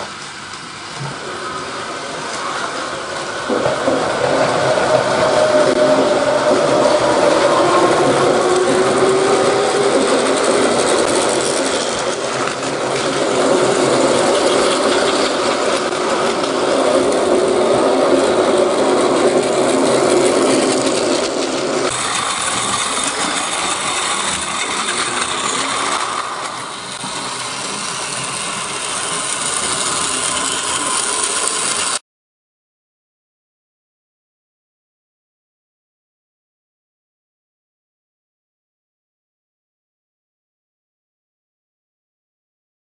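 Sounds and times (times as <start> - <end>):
toy train motor whirring: 1.9 - 32.0.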